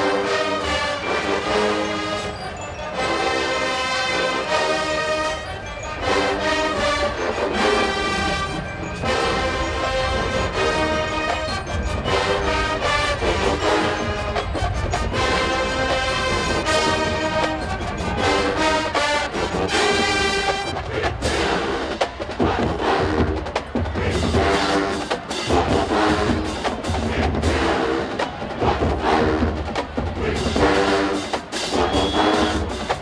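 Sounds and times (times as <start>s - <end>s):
brass chords: 0.0s - 33.0s
drum and percussion hits: 19.4s - 33.0s.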